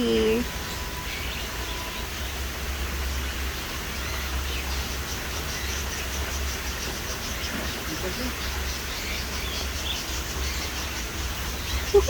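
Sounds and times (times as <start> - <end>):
low rumble and hiss: 0.0 - 12.0
faint high-pitched bird chirps: 3.2 - 12.0.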